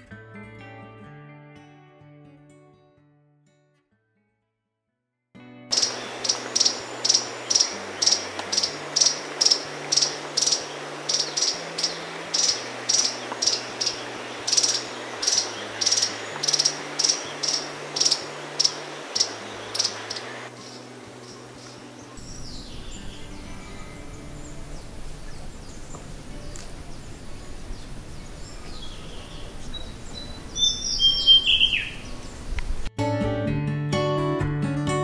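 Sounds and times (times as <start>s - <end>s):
bird high-pitched call: 5.7s - 20.8s, 28.3s - 32.4s.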